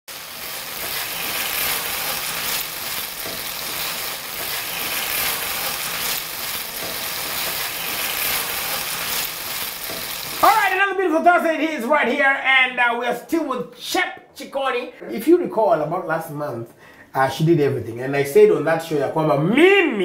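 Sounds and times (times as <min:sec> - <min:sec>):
food sizzling in a pan: 0:00.1 - 0:10.8.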